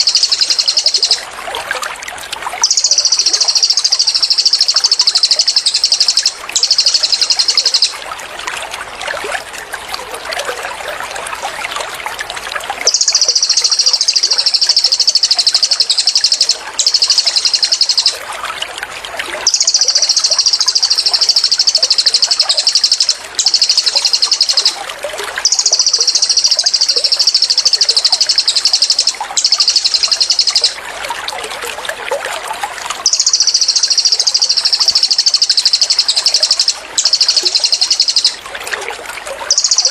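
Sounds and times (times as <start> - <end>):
trickling water: 0.0 - 39.9
bird rattling trills: 2.6 - 7.9, 25.4 - 30.8, 33.0 - 38.4, 39.5 - 39.9.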